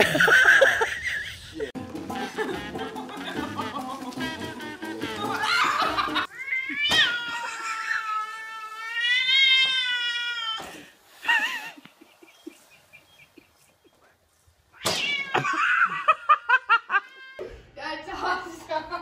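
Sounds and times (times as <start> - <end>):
cat yowling: 6.3 - 10.6, 14.8 - 15.8.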